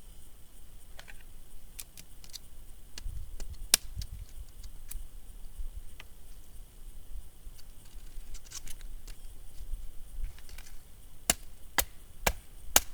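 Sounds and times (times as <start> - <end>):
wood splitting crack: 11.3 - 12.9.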